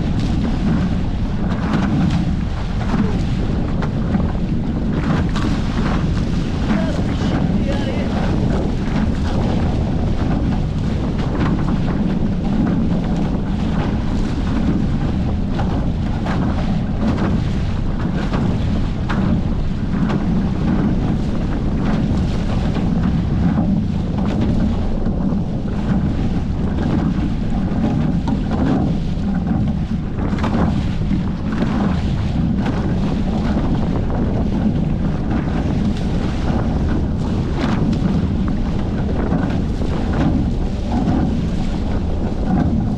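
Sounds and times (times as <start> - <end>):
water rushing along hulls: 0.0 - 42.9
wind buffeting microphone: 0.0 - 42.9.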